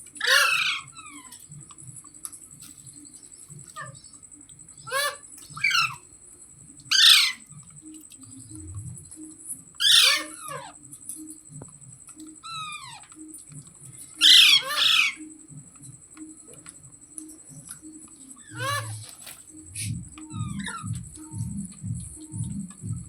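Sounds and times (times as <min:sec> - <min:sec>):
parrot squawking: 0:00.2 - 0:01.4, 0:04.8 - 0:06.0, 0:06.9 - 0:07.5, 0:09.8 - 0:10.8, 0:12.4 - 0:13.1, 0:14.2 - 0:15.3, 0:18.4 - 0:21.3.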